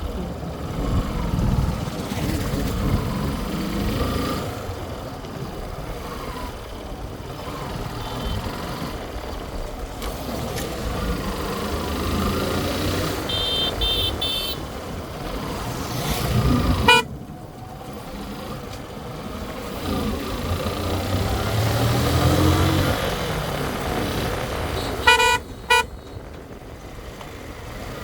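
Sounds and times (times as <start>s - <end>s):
road traffic: 0.0s - 28.0s
vehicle horn: 13.2s - 14.7s, 16.8s - 17.1s, 24.7s - 26.2s.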